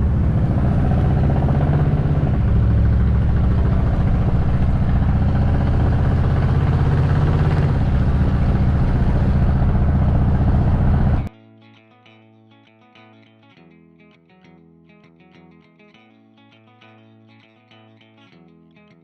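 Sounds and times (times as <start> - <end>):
car engine running: 0.0 - 11.3.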